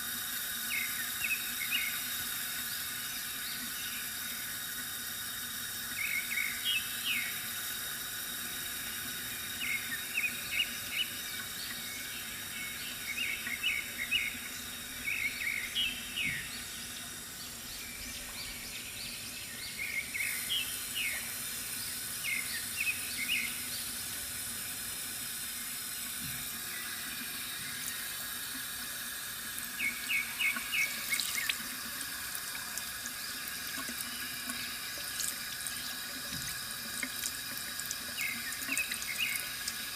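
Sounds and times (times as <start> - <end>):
water running from fountain: 0.0 - 39.9
birds chirping: 9.6 - 24.0, 29.8 - 31.6, 38.2 - 39.5.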